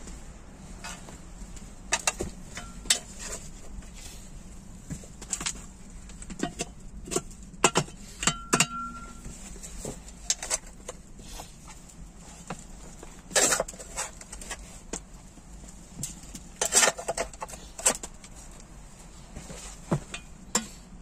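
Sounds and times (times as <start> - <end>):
scraping rustle: 0.0 - 6.2, 9.2 - 20.9
objects knocking and clinking: 6.3 - 9.3
short metallic ring: 8.3 - 9.3.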